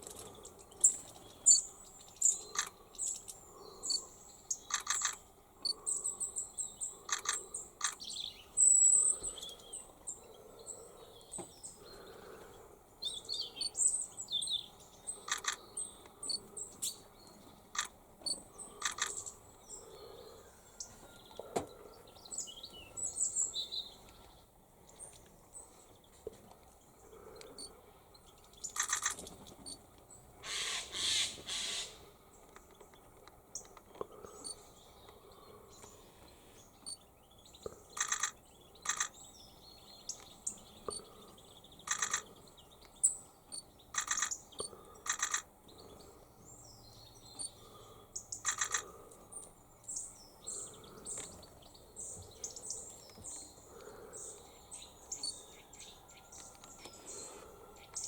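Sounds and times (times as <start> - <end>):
sharp high bird calls: 30.4 - 32.1.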